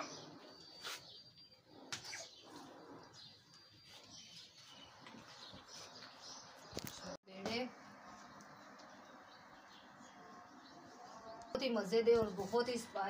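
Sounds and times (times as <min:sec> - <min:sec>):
faint high bird chirps: 0:00.0 - 0:06.1.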